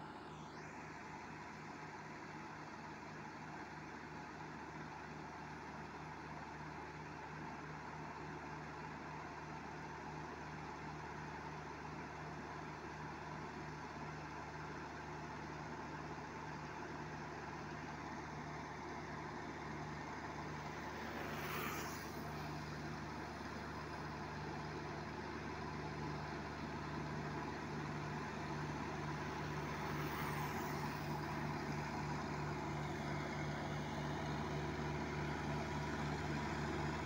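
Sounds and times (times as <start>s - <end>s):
tractor diesel engine running: 15.6s - 21.4s, 22.1s - 37.0s
brief whoosh: 20.4s - 23.3s, 29.3s - 32.1s.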